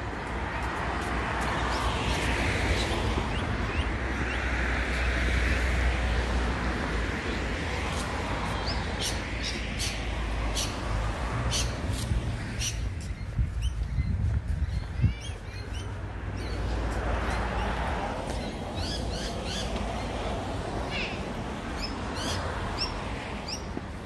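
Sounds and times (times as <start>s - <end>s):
small birds chirping: 11.5s - 23.8s.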